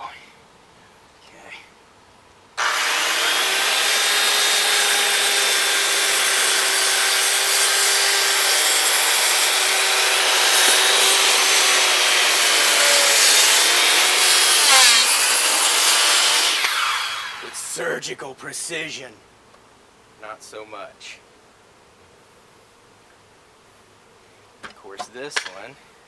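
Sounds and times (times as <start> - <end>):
electric saw cutting wood: 2.6 - 17.7.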